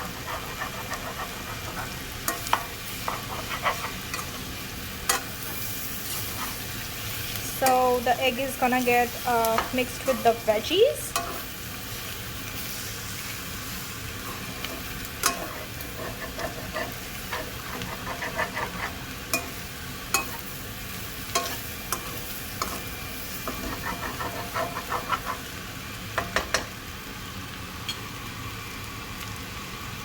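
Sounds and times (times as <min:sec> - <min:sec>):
food sizzling in a pan: 0:00.0 - 0:30.0
utensil knocking and scraping pan: 0:00.1 - 0:04.5, 0:14.7 - 0:19.6, 0:21.4 - 0:25.5.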